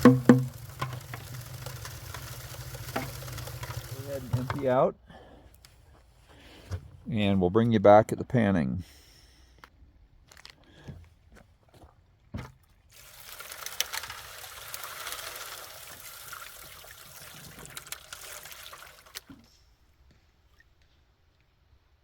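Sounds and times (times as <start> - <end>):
knock: 0.0 - 0.5
water pouring and splashing: 0.0 - 4.6, 12.9 - 19.5.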